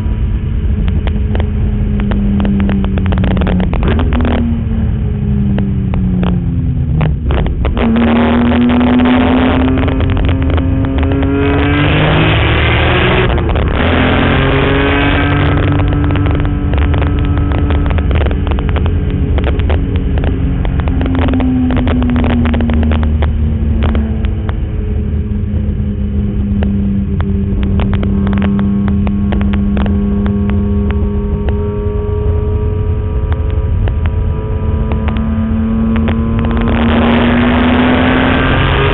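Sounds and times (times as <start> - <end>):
exhaust crackles: 0.0 - 38.9
car engine revving hard: 7.0 - 24.6, 27.5 - 38.9.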